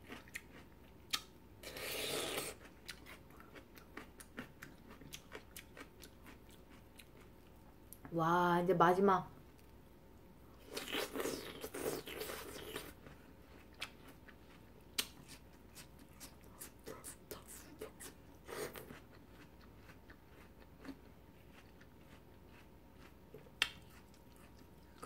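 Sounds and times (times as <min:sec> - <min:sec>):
wet mouth clicks and smacks: 0:23.3 - 0:24.1.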